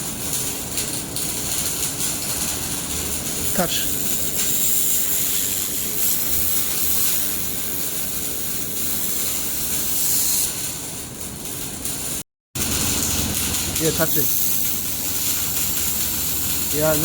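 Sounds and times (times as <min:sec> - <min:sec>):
welder unit hissing air: 0:00.0 - 0:17.0.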